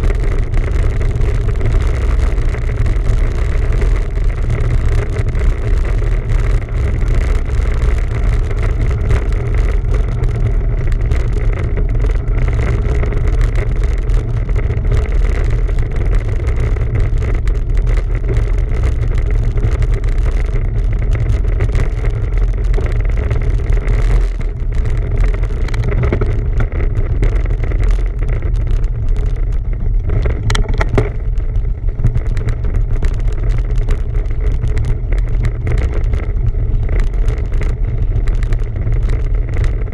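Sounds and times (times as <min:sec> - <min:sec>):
bicycle tyres on trail: 0:00.0 - 0:39.9.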